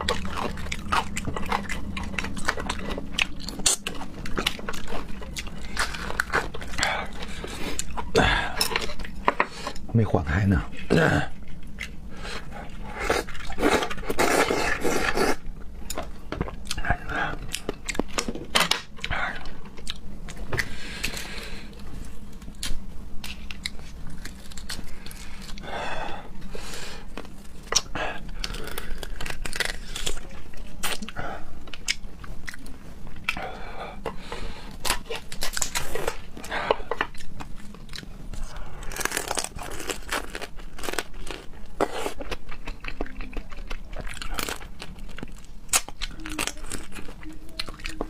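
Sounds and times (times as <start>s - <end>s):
chewing raw seafood: 0.0s - 9.9s, 27.0s - 48.0s
food wrapping crinkling: 20.3s - 25.7s, 26.6s - 31.1s, 34.1s - 48.0s
sharp clicks and crunches: 27.2s - 31.1s, 34.8s - 48.0s.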